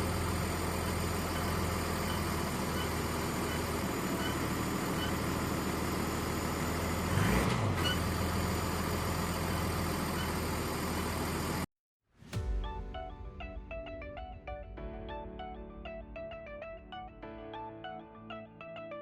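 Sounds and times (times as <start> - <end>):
car engine droning: 0.0 - 11.7
exhaust rumble on acceleration: 0.0 - 11.7.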